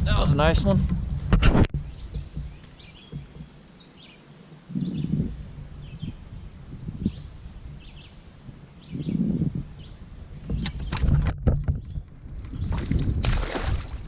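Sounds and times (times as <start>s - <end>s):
bird chirping: 1.8s - 6.2s, 6.8s - 11.1s.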